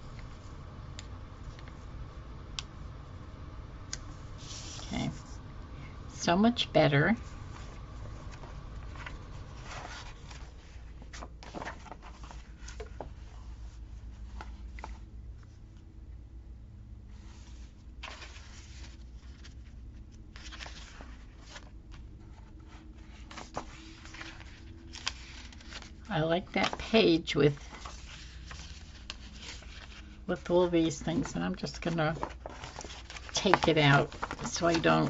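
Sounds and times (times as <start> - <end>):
steady low hum: 0.0 - 35.0
paper rustling: 4.4 - 5.3, 7.5 - 15.5, 17.2 - 35.0.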